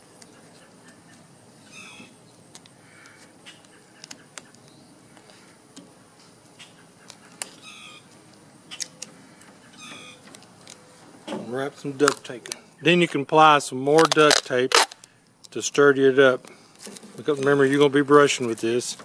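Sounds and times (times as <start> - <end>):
duct tape crinkling: 11.7 - 15.8.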